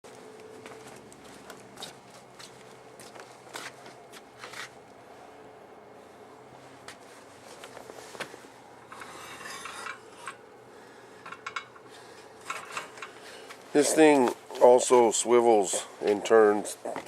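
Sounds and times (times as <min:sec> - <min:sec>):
short scraping rub: 0:07.0 - 0:10.4.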